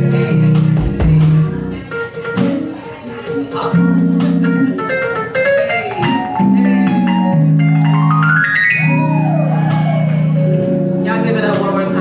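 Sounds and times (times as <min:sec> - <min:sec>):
drum and cymbal hits: 0:00.0 - 0:06.6
keyboard solo: 0:00.0 - 0:12.0.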